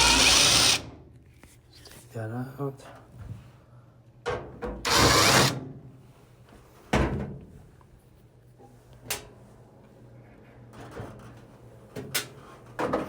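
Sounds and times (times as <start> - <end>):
power drill running: 0.0 - 0.8, 4.9 - 5.6.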